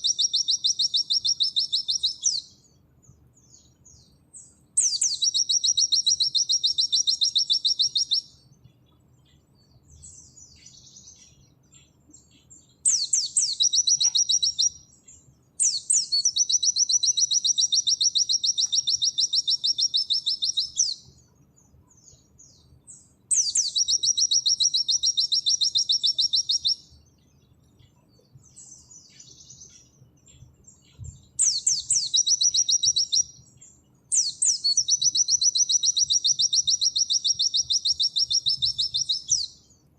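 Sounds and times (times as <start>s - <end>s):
high-pitched bird trills: 0.0s - 2.5s, 4.8s - 8.4s, 12.8s - 14.9s, 15.6s - 21.2s, 23.3s - 26.9s, 30.9s - 33.5s, 34.1s - 39.6s
soft bird chirps: 0.0s - 39.9s.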